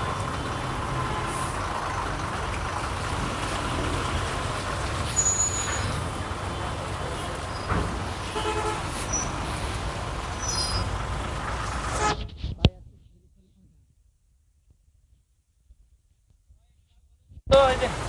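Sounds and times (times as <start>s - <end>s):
heavy road traffic: 0.0s - 14.5s, 16.7s - 18.0s
vehicle horn toot: 1.0s - 1.6s, 8.3s - 8.9s, 11.9s - 12.4s.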